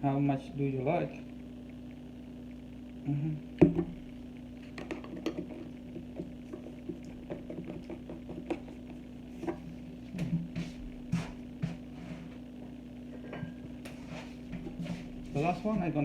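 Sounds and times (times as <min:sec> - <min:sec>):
steady low hum: 0:00.0 - 0:16.0
spoon tapping bowl: 0:04.8 - 0:08.8.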